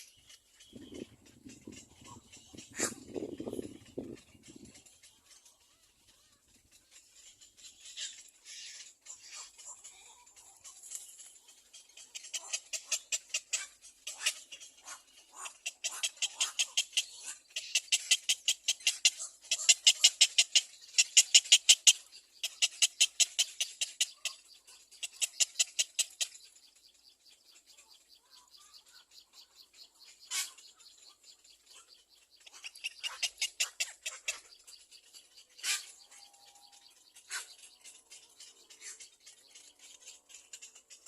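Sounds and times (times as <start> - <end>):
cormorant chick calling: 0.0 - 4.9, 11.8 - 26.4, 27.8 - 34.8, 35.4 - 39.1.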